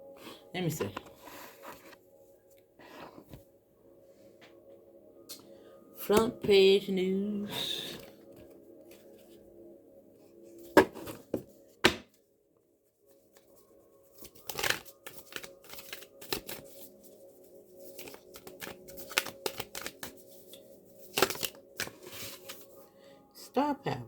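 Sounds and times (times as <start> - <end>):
faint background music: 0.0 - 24.0
cards being shuffled: 14.1 - 17.0, 17.7 - 22.7
cards snapping: 14.2 - 16.7, 17.9 - 22.5.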